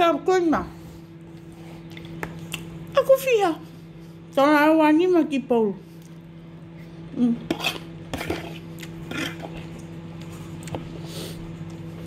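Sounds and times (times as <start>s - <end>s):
steady low hum: 0.0s - 12.0s
wet chewing: 1.2s - 3.0s, 8.3s - 12.0s
lip smacks: 1.4s - 2.8s.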